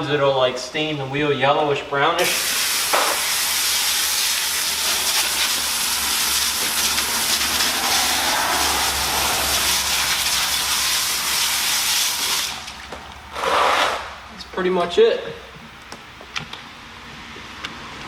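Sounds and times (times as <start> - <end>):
pressure washer spray hissing: 2.2 - 12.8.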